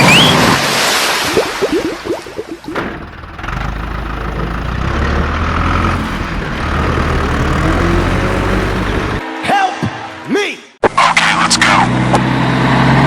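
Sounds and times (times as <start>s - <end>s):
vehicle engine idling: 2.6s - 9.2s.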